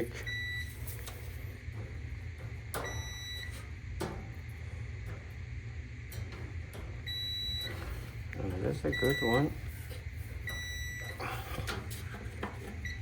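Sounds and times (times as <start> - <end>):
multimeter continuity beep: 0.0 - 0.8, 2.8 - 3.6, 7.0 - 7.8, 8.6 - 9.6, 10.4 - 11.2, 12.8 - 13.0
steady low hum: 0.0 - 13.0.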